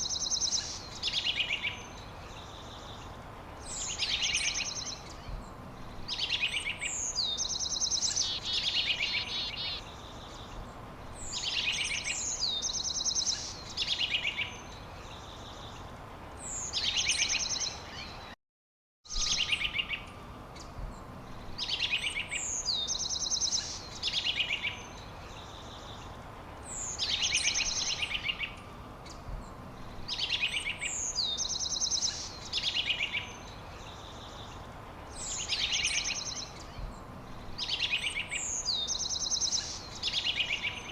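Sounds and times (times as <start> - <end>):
background hiss: 0.0 - 18.3, 19.1 - 40.9
songbird singing short high phrase: 21.6 - 26.1, 35.2 - 40.9.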